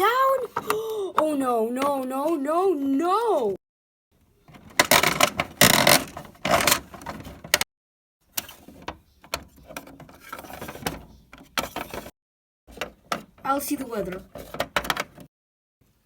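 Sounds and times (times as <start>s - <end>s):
plastic toys clattering and scraping: 0.0s - 2.7s, 4.4s - 7.6s, 8.2s - 12.1s, 12.7s - 15.3s.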